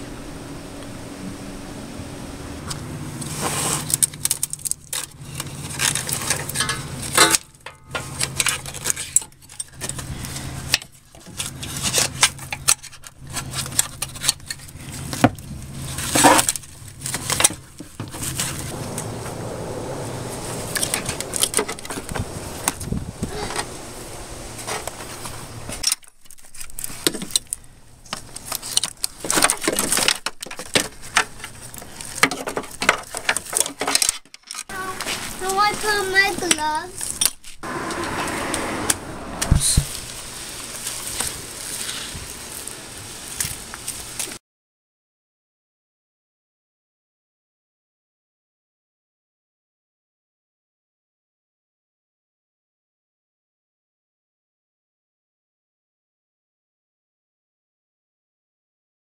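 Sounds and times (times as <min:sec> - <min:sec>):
steady low hum: 0:00.0 - 0:25.8
metal tools clinking and rattling: 0:03.9 - 0:10.1.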